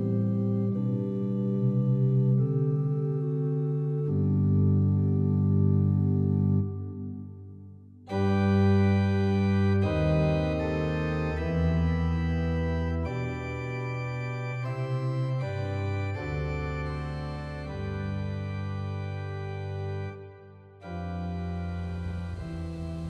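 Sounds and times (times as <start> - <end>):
organ chords: 0.0 - 23.0.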